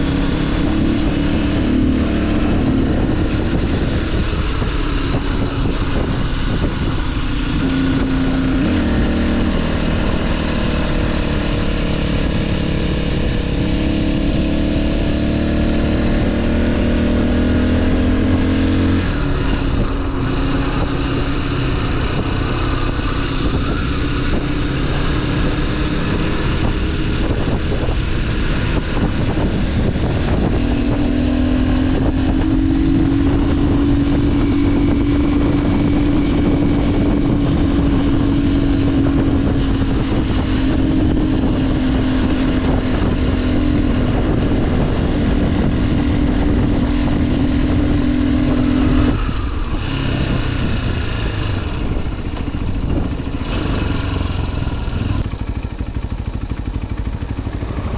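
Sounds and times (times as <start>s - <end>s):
motorcycle engine running: 0.0s - 57.9s
wind noise on microphone: 0.0s - 57.9s.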